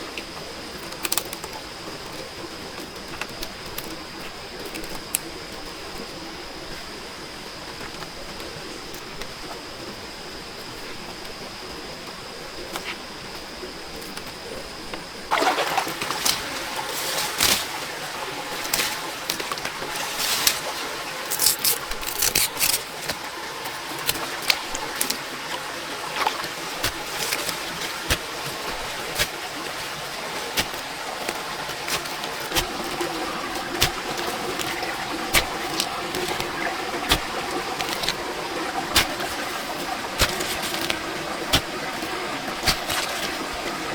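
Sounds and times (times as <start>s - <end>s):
water or rain hiss: 15.3s - 43.9s.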